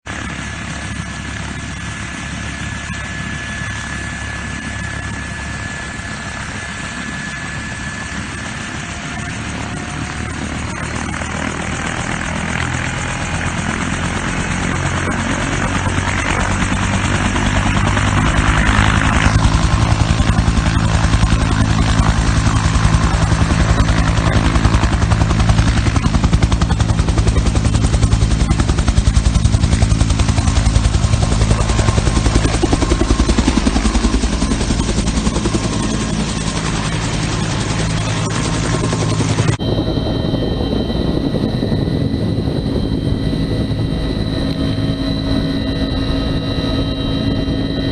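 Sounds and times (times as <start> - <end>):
helicopter rotor beating: 0.1 - 47.9.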